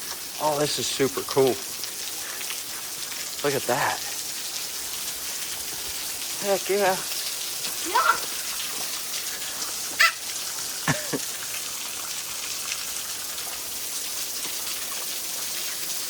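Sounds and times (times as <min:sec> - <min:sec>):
waterfall rushing: 0:07.8 - 0:11.3.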